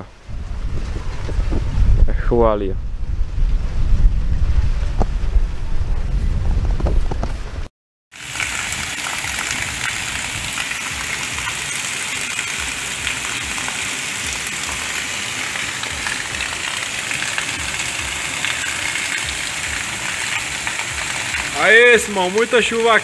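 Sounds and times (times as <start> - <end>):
heavy rain pouring: 8.1 - 23.0
roof runoff splashing on ground: 8.1 - 23.0.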